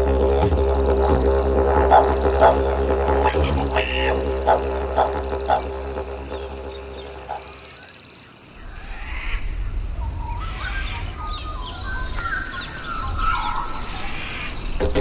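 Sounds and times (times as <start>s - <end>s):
didgeridoo drone: 0.0s - 7.8s.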